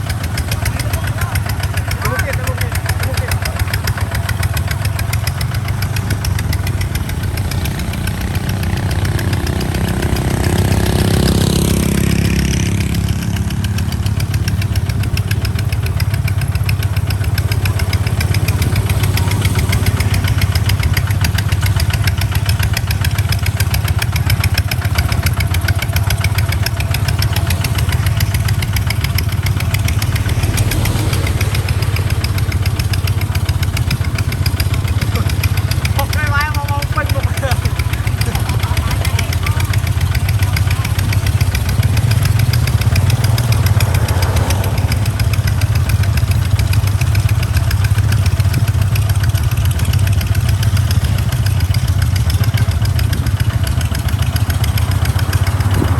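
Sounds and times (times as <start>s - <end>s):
diesel tractor engine running: 0.0s - 55.9s.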